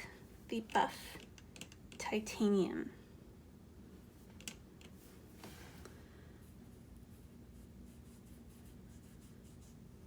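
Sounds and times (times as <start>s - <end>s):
low room hum: 0.0s - 10.0s
brush scratching on paper: 6.5s - 10.0s.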